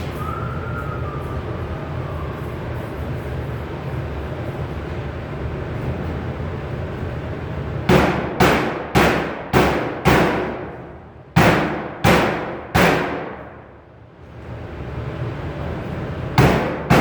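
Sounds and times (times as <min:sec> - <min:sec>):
hammer striking sheet metal: 0:07.9 - 0:13.7, 0:16.4 - 0:17.0.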